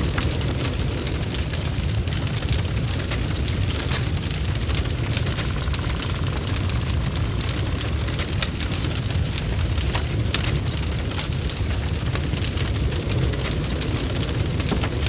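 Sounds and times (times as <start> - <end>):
bonfire crackling: 0.0 - 15.0.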